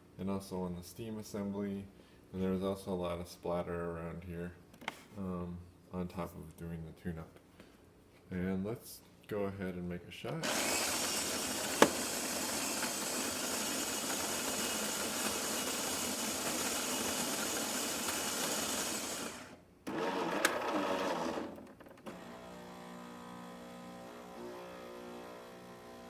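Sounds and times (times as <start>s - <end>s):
coffee grinder whirring: 10.4s - 26.0s
espresso machine mechanical whirr: 10.4s - 26.0s.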